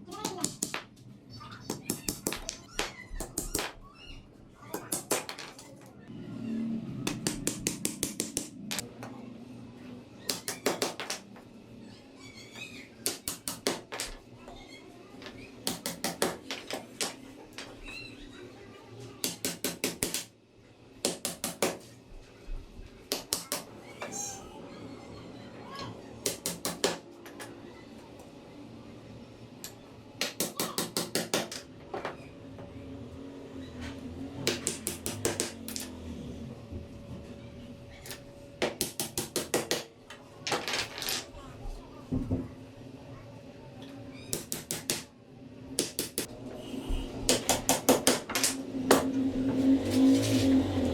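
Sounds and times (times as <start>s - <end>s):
hammer tapping on wood: 7.1s - 8.8s, 34.5s - 35.8s.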